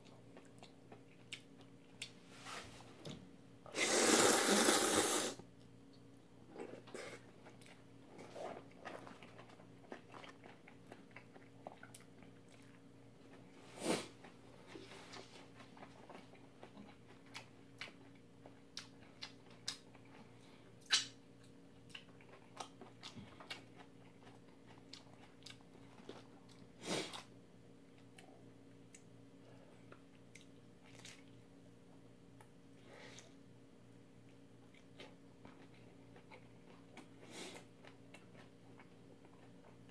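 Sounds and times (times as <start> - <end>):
faint steady hum: 0.0 - 39.9
chewing noodles: 6.5 - 13.5, 15.1 - 27.3, 29.9 - 31.4.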